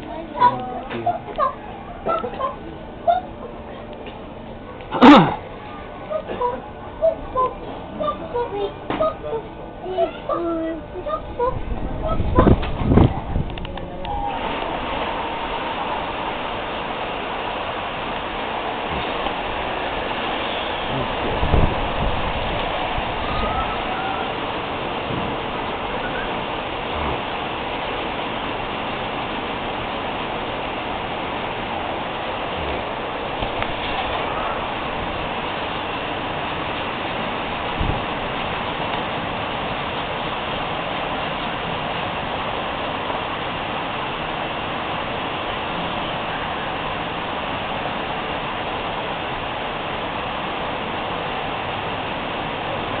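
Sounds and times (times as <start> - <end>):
steady rushing noise: 10.9 - 53.0.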